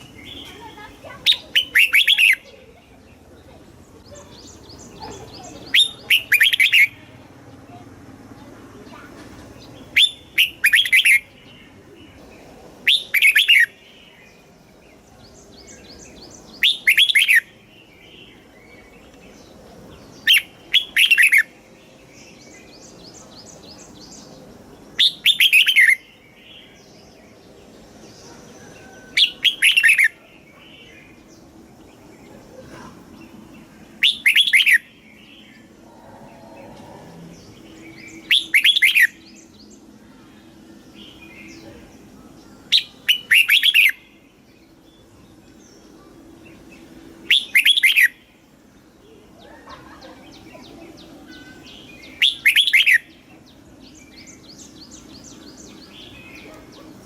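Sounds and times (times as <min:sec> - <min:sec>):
faint bird chirping: 0:00.0 - 0:57.0
bird whistled phrases: 0:01.2 - 0:02.5, 0:05.4 - 0:07.0, 0:09.9 - 0:11.3, 0:12.8 - 0:13.8, 0:16.6 - 0:17.5, 0:25.0 - 0:26.1, 0:28.8 - 0:30.3, 0:34.0 - 0:34.9, 0:38.2 - 0:39.2, 0:42.7 - 0:44.0, 0:47.3 - 0:48.2, 0:51.3 - 0:53.1.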